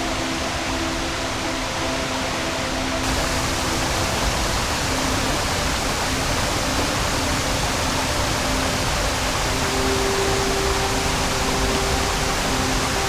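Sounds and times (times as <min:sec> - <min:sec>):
rushing stream water: 0:00.0 - 0:13.0.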